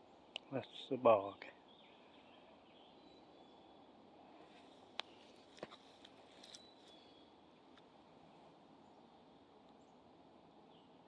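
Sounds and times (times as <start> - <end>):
faint outdoor ambience: 0.0 - 11.0
faint high chirp: 1.7 - 5.5, 6.2 - 7.7.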